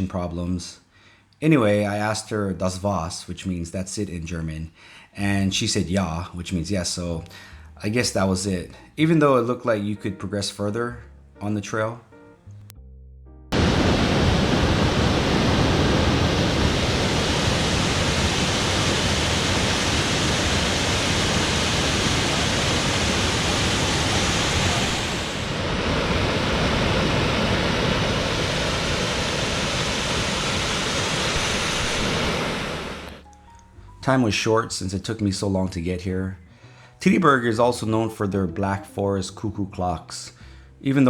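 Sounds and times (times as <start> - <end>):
waterfall roaring: 13.6 - 33.2.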